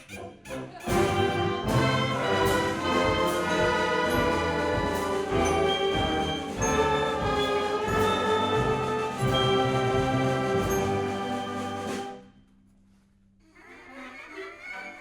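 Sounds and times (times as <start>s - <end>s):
concert band playing: 0.9s - 12.2s.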